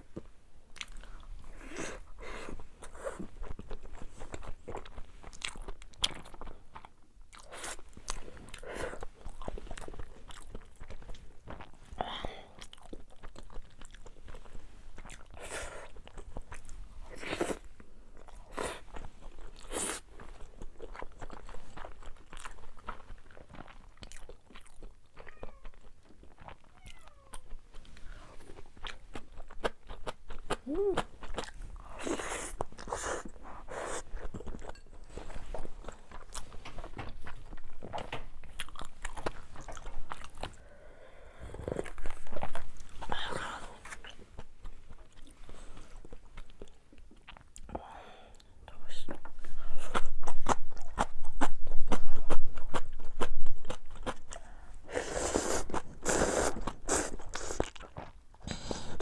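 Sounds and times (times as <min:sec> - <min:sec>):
person chewing and biting food: 0:28.4 - 0:40.6, 0:49.1 - 0:59.0.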